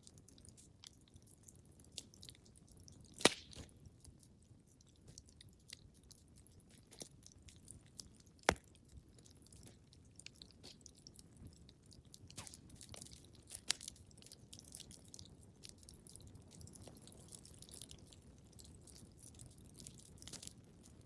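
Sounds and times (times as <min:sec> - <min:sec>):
wood fire crackling: 0:00.0 - 0:21.0
loud fire pops: 0:03.2 - 0:03.7.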